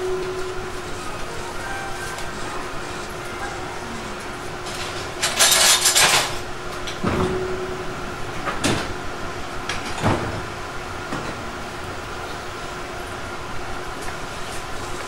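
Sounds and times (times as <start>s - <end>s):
electric train humming: 0.0s - 9.9s
air conditioning: 0.0s - 15.0s.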